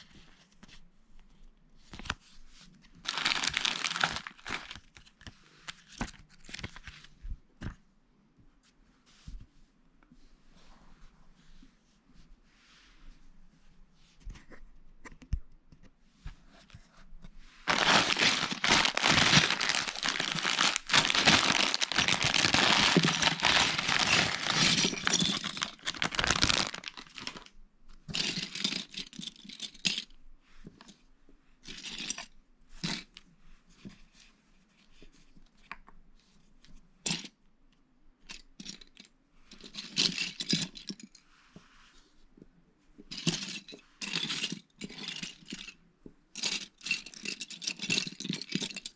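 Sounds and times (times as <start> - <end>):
plastic bag crinkling: 3.0 - 4.9, 17.7 - 27.5
plastic bricks clicking and rattling: 3.1 - 4.8, 17.7 - 27.5.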